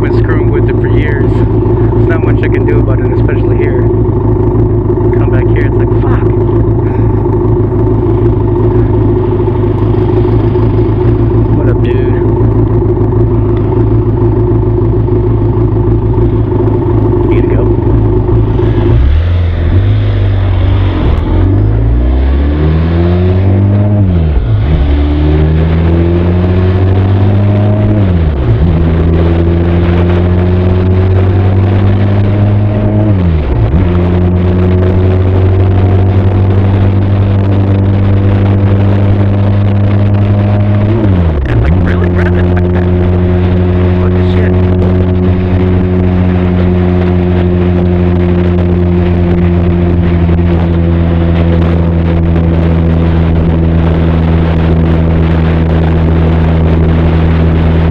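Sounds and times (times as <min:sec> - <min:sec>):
motorcycle engine accelerating: 0:00.0 - 0:57.9.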